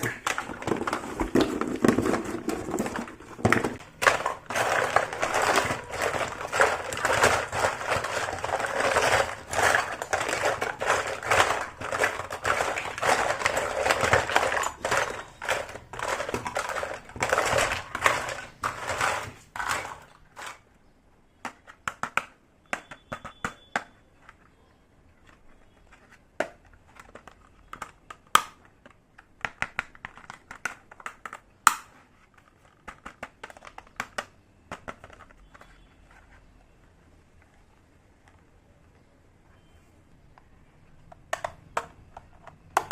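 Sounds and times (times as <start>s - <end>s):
plastic packaging crinkling: 0.0s - 20.6s
small hard pieces clicking: 3.4s - 20.6s.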